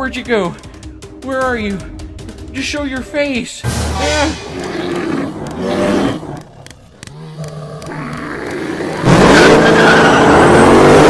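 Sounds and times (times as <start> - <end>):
race car engine revving: 4.0 - 11.0
clicks: 4.6 - 9.1.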